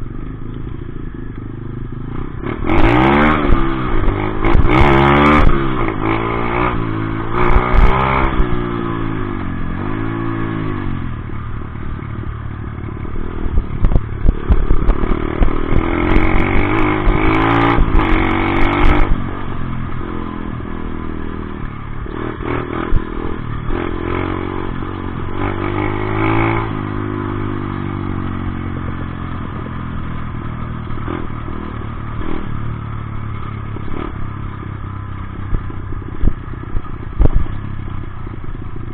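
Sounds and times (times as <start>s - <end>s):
dirt bike engine revving: 2.2s - 9.2s, 13.1s - 19.3s.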